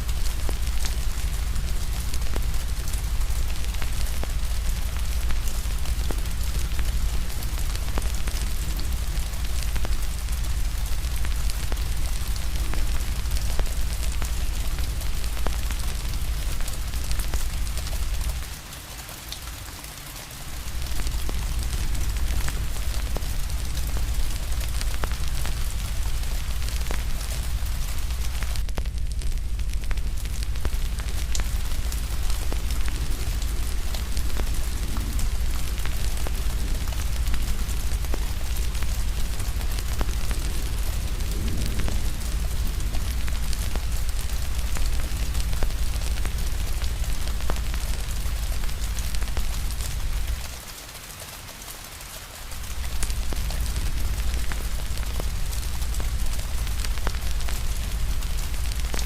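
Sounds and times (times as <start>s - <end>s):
rain hiss: 0.0s - 59.0s
wood fire crackling: 0.0s - 59.0s
deep low rumble: 20.6s - 50.5s.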